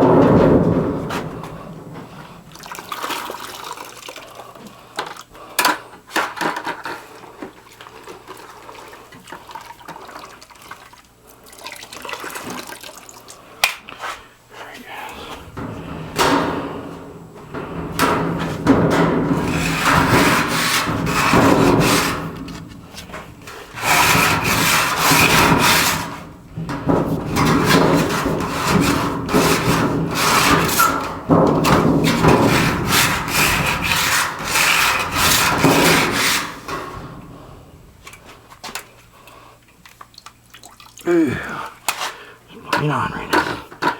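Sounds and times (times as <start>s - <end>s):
scrubbing on a hard surface: 17.5s - 26.2s, 31.6s - 36.8s.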